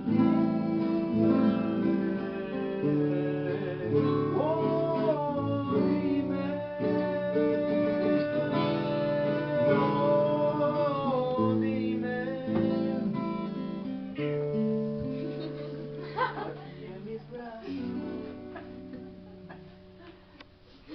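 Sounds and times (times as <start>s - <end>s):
sliding melody line: 0.0s - 16.0s
acoustic guitar strumming: 0.0s - 20.1s.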